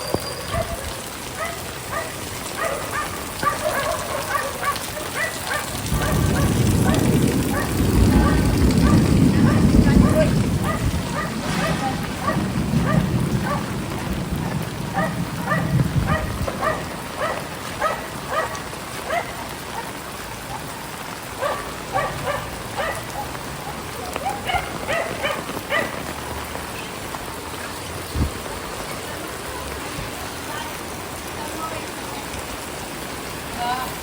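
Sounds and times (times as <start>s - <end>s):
dog barking: 0.0s - 13.8s, 14.4s - 26.1s
heavy rain falling: 0.0s - 34.0s.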